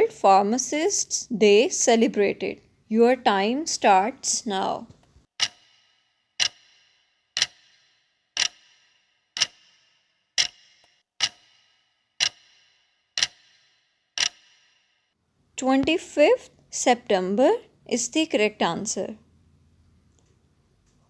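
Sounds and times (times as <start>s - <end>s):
clock ticking: 5.4s - 14.7s, 15.6s - 16.5s.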